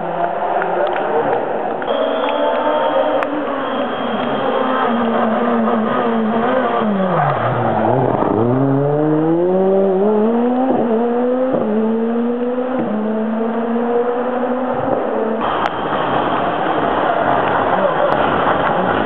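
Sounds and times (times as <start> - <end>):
racing car engine accelerating: 1.9 - 19.0.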